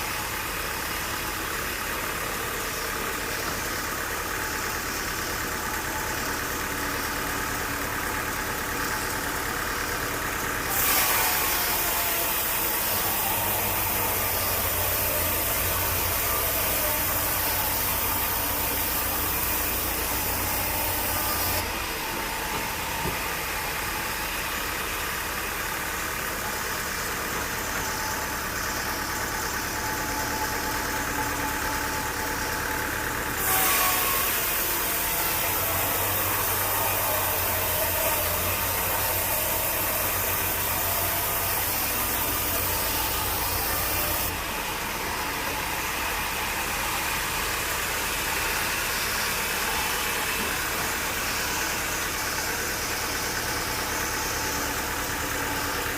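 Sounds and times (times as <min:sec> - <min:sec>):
sawmill engine running: 0:00.0 - 0:55.9
saw blade cutting log: 0:10.6 - 0:21.7, 0:33.4 - 0:44.4.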